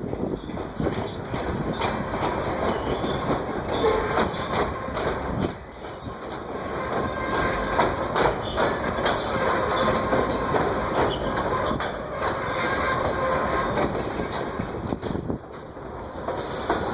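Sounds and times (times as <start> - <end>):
steel wheels clacking over rail joints: 0.0 - 16.9.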